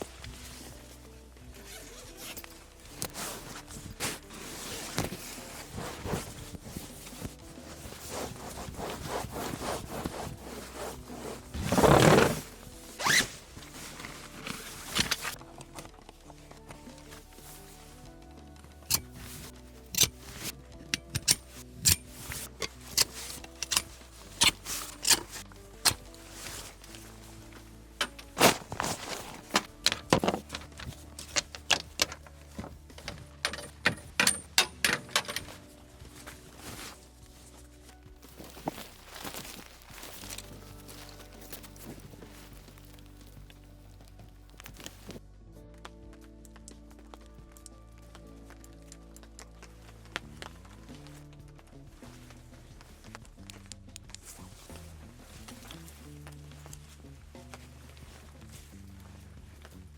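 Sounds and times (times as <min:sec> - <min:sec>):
zipper rasping: 0:01.6 - 0:15.4, 0:18.9 - 0:27.4, 0:28.0 - 0:32.7
objects knocking and clinking: 0:19.9 - 0:26.0, 0:33.0 - 0:35.6.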